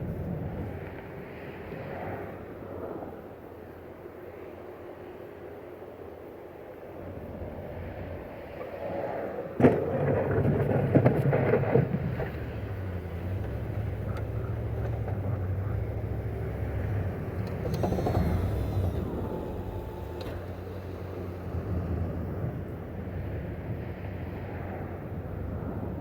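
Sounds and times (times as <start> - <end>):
engine droning: 6.5 - 26.0
clattering: 9.7 - 22.9.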